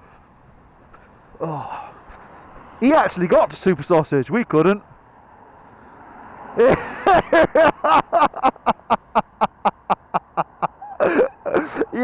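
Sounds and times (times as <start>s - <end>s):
man laughing hard: 6.6s - 12.0s.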